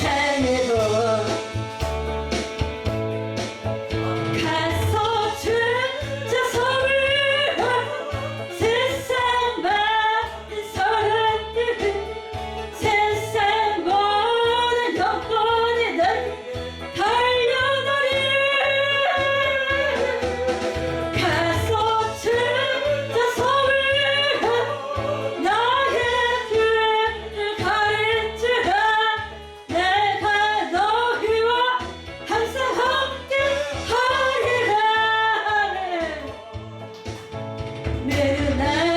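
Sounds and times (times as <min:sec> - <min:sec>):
instrumental accompaniment: 0:00.0 - 0:38.9
person singing worship song: 0:14.8 - 0:28.0, 0:32.6 - 0:37.2.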